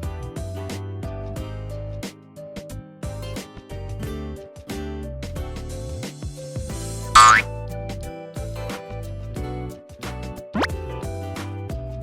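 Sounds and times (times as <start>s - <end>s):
cheerful plucked guitar tune: 7.2s - 7.4s
steady bass line: 7.2s - 7.4s.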